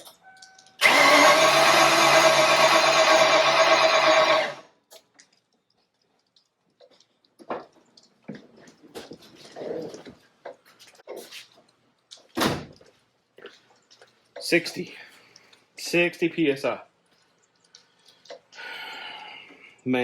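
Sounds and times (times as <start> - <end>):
starter cranking engine: 0.8 - 4.7.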